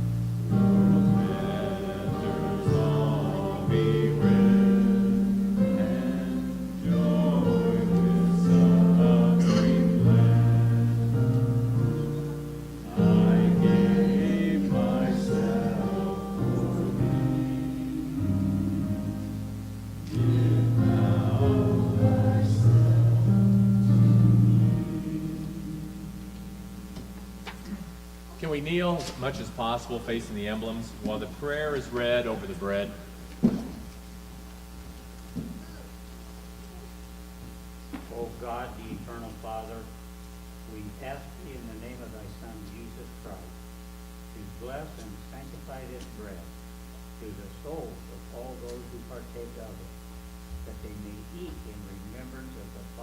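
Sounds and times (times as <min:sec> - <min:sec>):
group singing a hymn: 0:00.0 - 0:27.8
held instrumental notes: 0:00.0 - 0:27.9.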